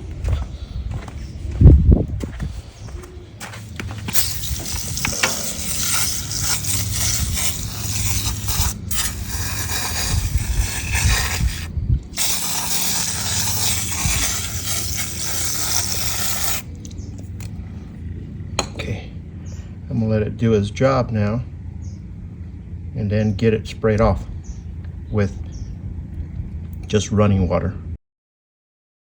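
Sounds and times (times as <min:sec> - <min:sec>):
aerosol can spraying: 0:04.0 - 0:16.7.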